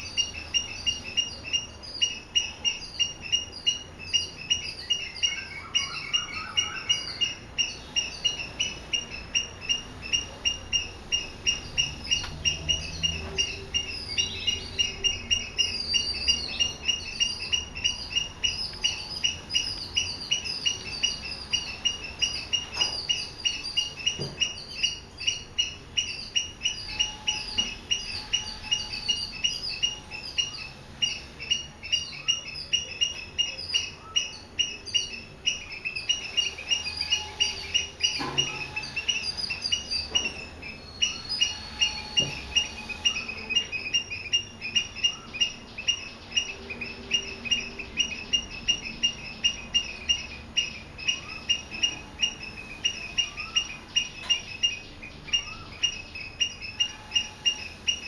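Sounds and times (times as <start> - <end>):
bird chirping rhythmically: 0.0 - 58.0
other bird calls: 0.0 - 58.0.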